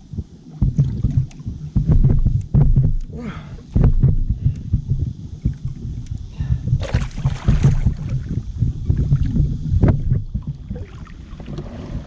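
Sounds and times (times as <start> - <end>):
wind rumble on microphone: 0.0 - 12.0
water splashing: 6.8 - 12.0.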